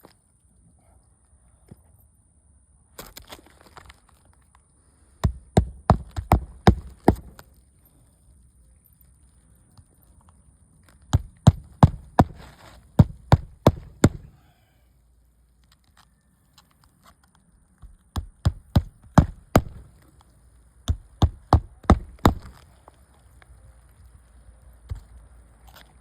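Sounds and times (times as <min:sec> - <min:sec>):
hammer striking nails: 0:05.2 - 0:07.4, 0:11.1 - 0:14.4, 0:17.8 - 0:19.9, 0:20.8 - 0:22.6.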